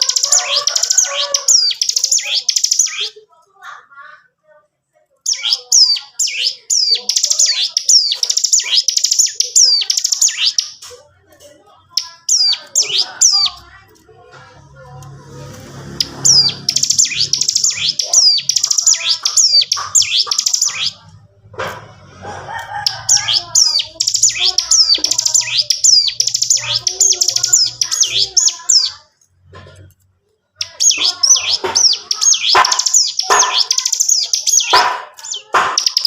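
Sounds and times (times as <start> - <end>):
bird singing high sharp notes: 0.0 - 3.2, 5.3 - 10.9, 12.0 - 13.6, 15.6 - 21.1, 22.8 - 29.0, 30.6 - 36.0.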